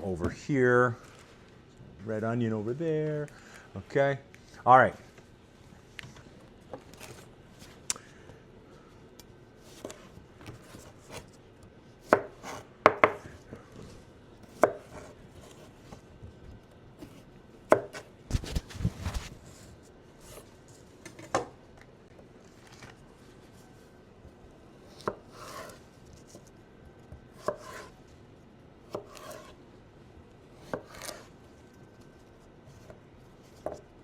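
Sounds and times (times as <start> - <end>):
knife chopping on cutting board: 12.1 - 13.4, 14.5 - 15.7, 17.0 - 18.6, 24.9 - 25.8, 27.1 - 27.9, 28.9 - 29.6, 30.6 - 31.3.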